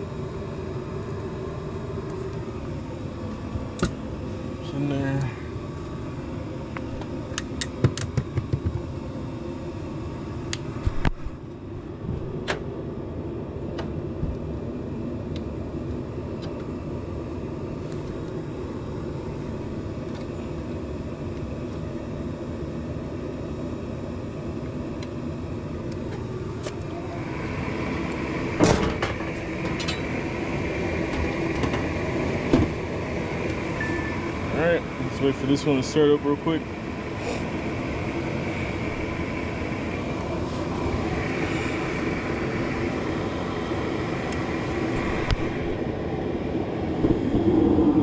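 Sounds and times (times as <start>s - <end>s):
furnace hum and rumble: 0.0s - 48.0s
higher steady machine tone: 0.0s - 48.0s
sharp clicks and knocks: 7.4s - 8.8s.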